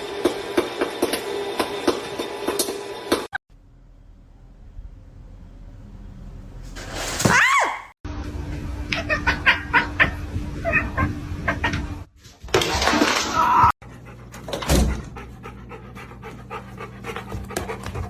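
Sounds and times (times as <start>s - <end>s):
dog panting: 13.8s - 18.0s.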